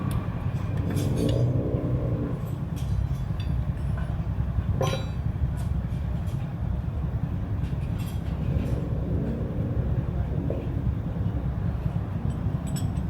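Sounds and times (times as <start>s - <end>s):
steady low rumble: 0.0s - 13.0s
light metallic clinks: 12.2s - 13.0s.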